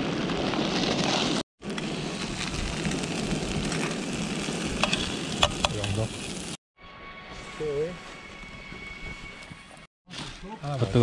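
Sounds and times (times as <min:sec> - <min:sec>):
rice sizzling on a griddle: 0:00.0 - 0:06.6.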